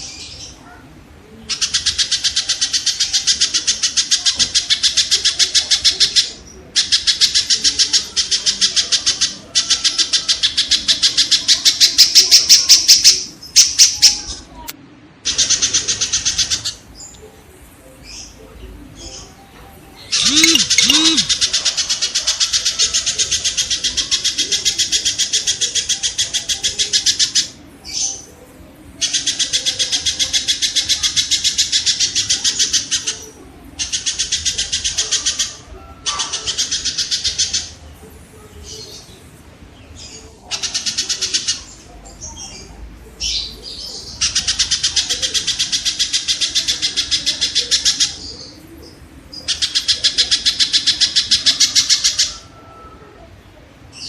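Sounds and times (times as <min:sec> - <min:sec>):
kingfisher rattling trills: 0:20.0 - 0:27.5.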